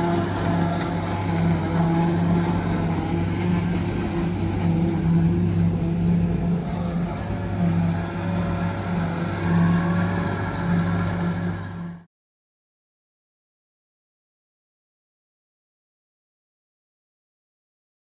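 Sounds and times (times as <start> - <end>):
tractor engine droning: 0.0 - 12.0.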